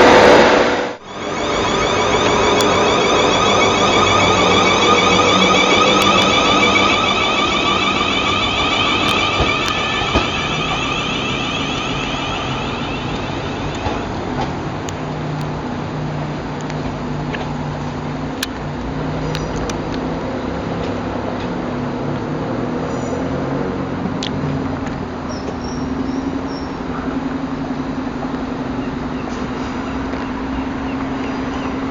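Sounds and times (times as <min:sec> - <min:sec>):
steady low hum: 0:00.0 - 0:15.1
electric train motors whining: 0:00.0 - 0:15.2.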